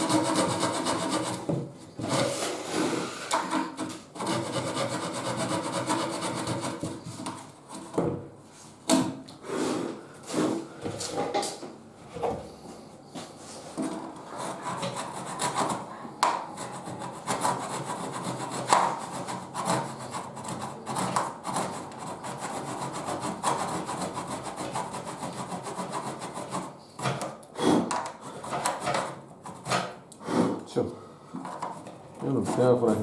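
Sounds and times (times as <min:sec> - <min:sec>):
hand saw cutting wood panel: 0:00.0 - 0:08.0, 0:14.3 - 0:30.6, 0:31.6 - 0:33.0
scraping sounds: 0:31.5 - 0:33.0.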